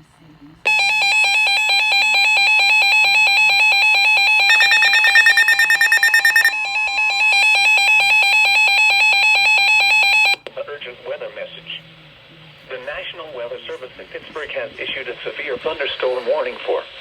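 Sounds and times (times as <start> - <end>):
warbling electronic alarm: 0.7 - 10.4
buzzy rapid beeping: 4.4 - 6.6.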